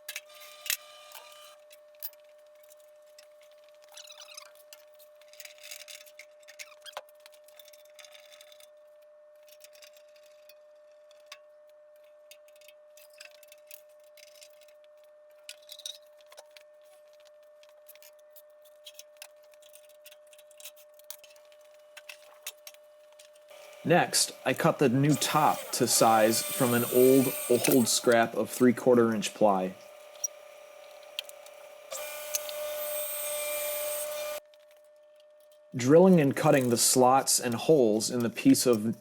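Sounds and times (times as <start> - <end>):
high-pitched hum: 23.5 - 34.4.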